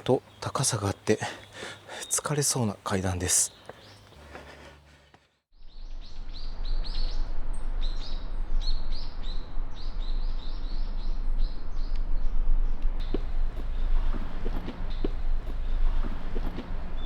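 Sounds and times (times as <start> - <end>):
small birds chirping: 0.0 - 4.7, 7.8 - 17.0
steady low rumble: 5.6 - 17.0.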